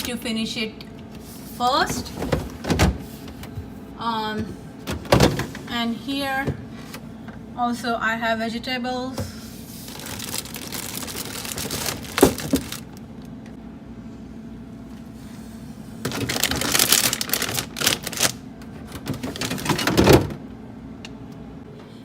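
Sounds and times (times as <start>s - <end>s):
plastic drawers sliding and rattling: 1.8s - 3.6s, 4.8s - 5.7s, 9.9s - 12.8s, 16.1s - 20.3s.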